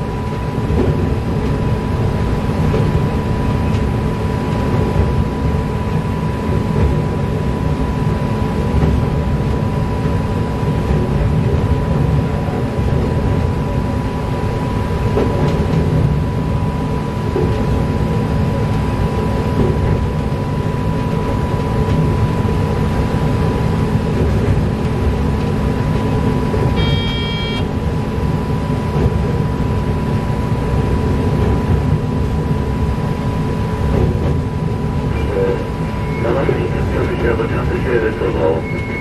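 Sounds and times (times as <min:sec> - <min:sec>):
train wheels rumbling on track: 0:00.0 - 0:27.0, 0:27.6 - 0:39.0
short high tone: 0:26.8 - 0:27.7.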